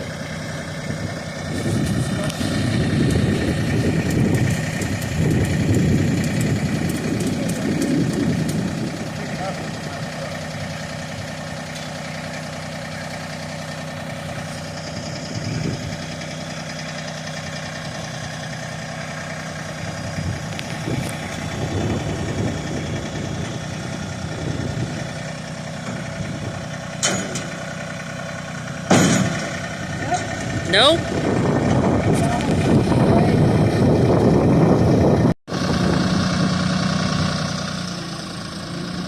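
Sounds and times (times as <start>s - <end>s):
vehicle engine idling: 0.0s - 39.0s
sharp knocks: 28.9s - 29.6s.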